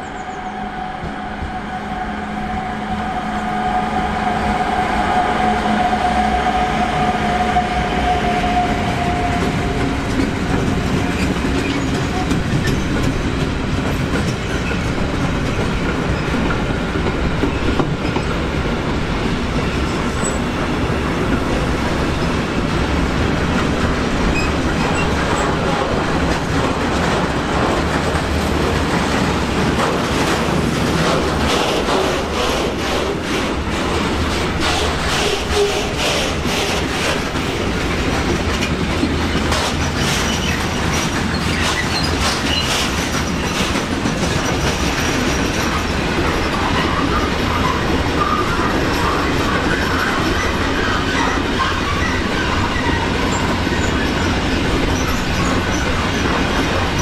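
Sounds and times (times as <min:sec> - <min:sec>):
train wheels rolling on rails: 0:00.0 - 0:57.0
clickety-clack over rail joints: 0:06.9 - 0:57.0.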